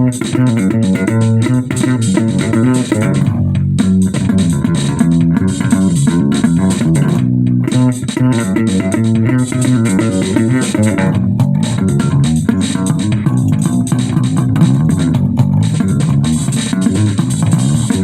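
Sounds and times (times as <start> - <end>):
bass guitar plucked notes: 0.0 - 18.0
drum kit beat: 0.0 - 18.0.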